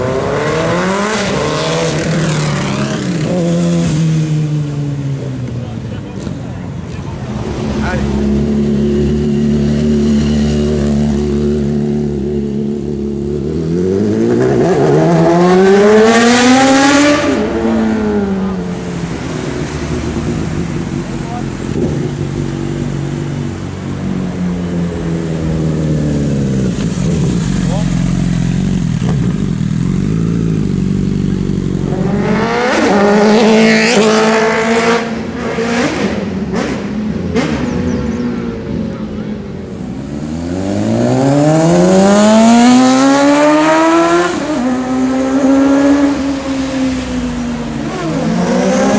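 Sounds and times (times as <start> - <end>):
motorcycle engine accelerating: 7.4 - 38.9, 39.6 - 48.9
engines idling: 18.2 - 32.4.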